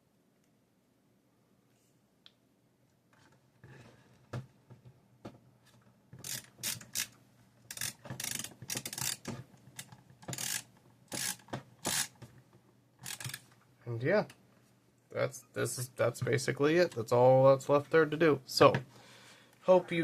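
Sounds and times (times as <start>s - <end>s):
screwdriver scraping and clicking: 6.2s - 12.2s, 13.0s - 13.5s.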